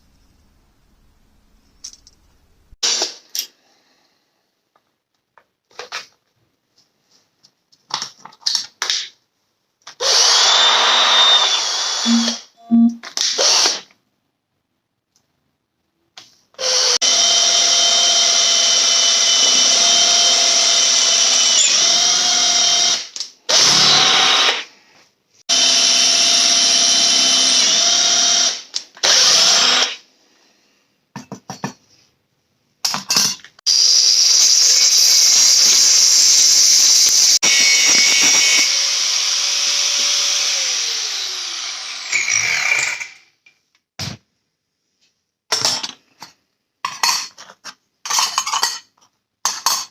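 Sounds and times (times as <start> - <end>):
electric power tool on steel: 10.0 - 12.5, 16.7 - 24.7, 25.5 - 30.0, 33.7 - 43.3.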